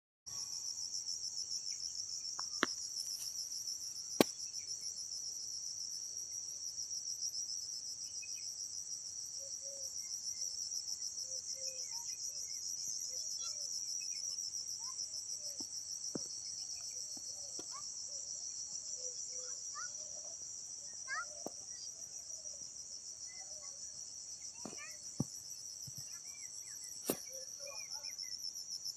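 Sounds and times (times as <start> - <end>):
trilling insects chorus: 0.3 - 28.9
faint chirps: 11.2 - 28.6.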